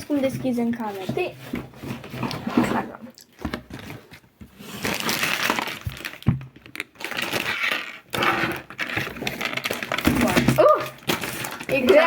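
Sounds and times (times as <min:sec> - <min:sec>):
packaging rustling and ripping: 0:01.0 - 0:12.0.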